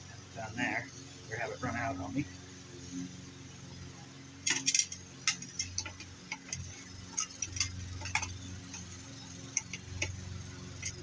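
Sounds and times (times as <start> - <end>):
lawnmower engine humming: 0.0 - 11.0
hand tools clicking and knocking: 4.5 - 10.2, 10.8 - 11.0.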